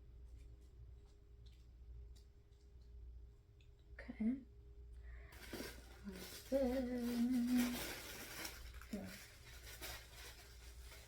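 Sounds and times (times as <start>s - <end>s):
packaging rustling: 5.4s - 11.0s.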